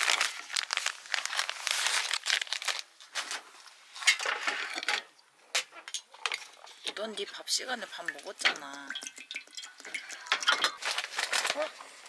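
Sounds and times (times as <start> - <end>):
plastic packaging crinkling: 0.0 - 4.3, 9.8 - 12.0.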